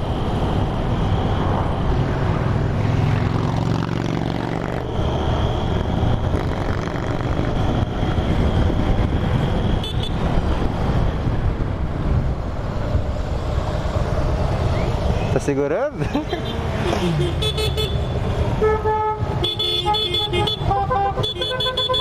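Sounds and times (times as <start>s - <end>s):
wind rushing over microphone: 0.0s - 15.4s.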